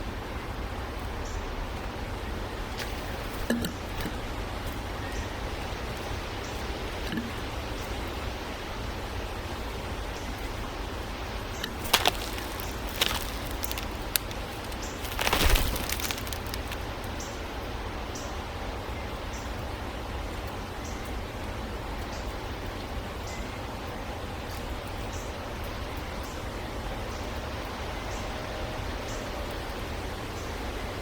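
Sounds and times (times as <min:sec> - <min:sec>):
steady outdoor hiss: 0:00.0 - 0:31.0
birds' wings fluttering: 0:11.8 - 0:16.9.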